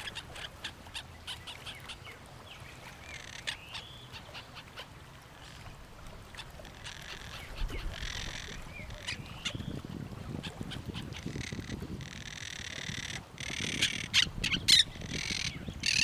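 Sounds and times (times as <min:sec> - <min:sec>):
sliding bird calls: 0:11.0 - 0:16.0.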